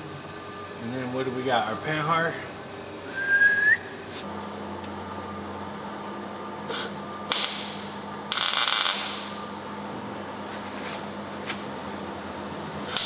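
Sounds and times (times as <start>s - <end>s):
low shop hum: 0.0s - 13.0s
welding crackle: 6.7s - 9.7s.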